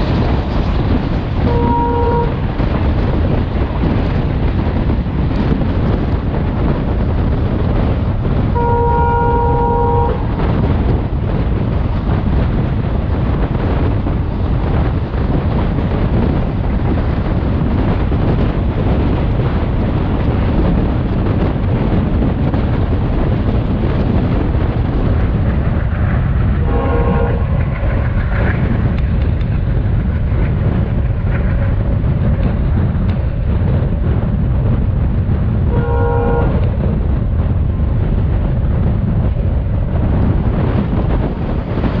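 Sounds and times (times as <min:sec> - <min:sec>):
train running on rails: 0:00.0 - 0:42.0
locomotive horn: 0:01.4 - 0:02.4, 0:08.6 - 0:10.3, 0:26.6 - 0:27.5, 0:35.7 - 0:36.7.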